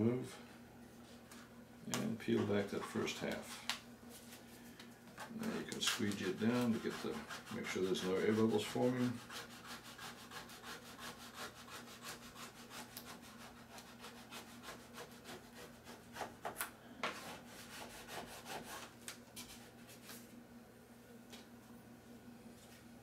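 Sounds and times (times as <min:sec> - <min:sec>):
squeegee rubbing vinyl: 0:05.2 - 0:16.4.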